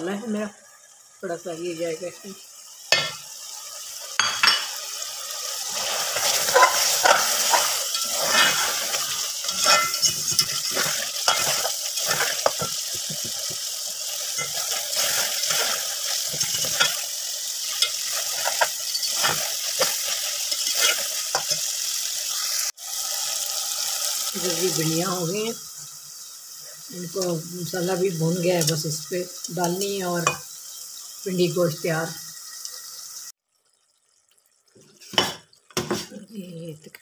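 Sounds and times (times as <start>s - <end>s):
sauce sizzling in oil: 0.0s - 37.0s
metal spatula scraping pot: 5.7s - 17.0s, 17.6s - 21.6s.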